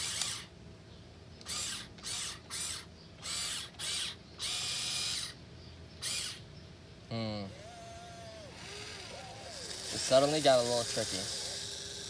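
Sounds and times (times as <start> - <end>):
electric motors whirring: 0.0 - 0.5, 1.4 - 5.4, 6.0 - 6.4, 7.5 - 12.0.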